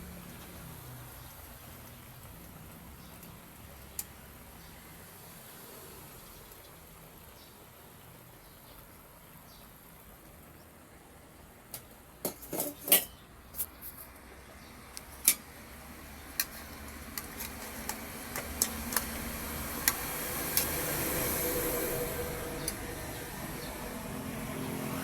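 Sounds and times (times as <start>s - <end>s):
metal utensil clinking on pot: 12.2s - 13.2s, 15.2s - 15.5s.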